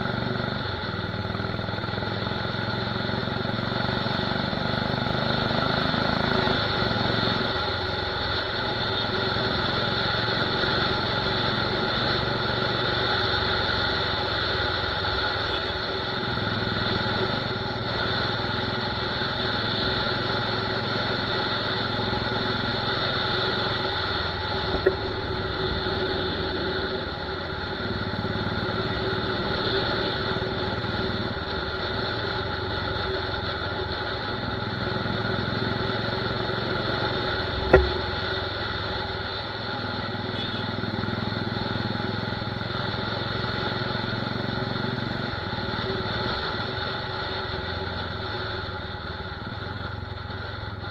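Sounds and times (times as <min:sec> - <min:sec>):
motorcycle engine running: 0:00.0 - 0:50.9
sharp exhaust crack: 0:21.3 - 0:39.8.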